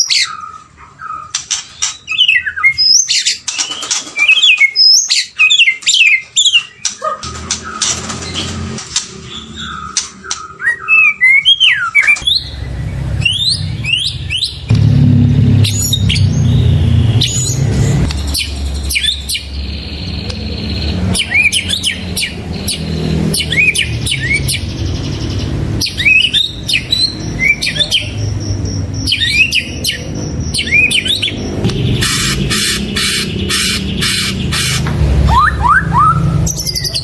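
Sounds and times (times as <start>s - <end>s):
bird singing whistled notes: 9.5s - 14.7s, 15.6s - 25.2s, 25.8s - 34.4s
low steady rumble: 12.2s - 21.1s
rapid buzzy pulsing: 31.2s - 35.3s.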